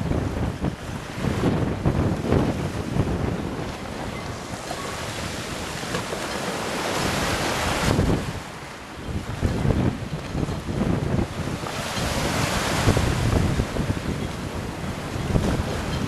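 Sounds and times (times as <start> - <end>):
sea waves washing: 0.0 - 16.0
wind buffeting microphone: 0.0 - 16.0.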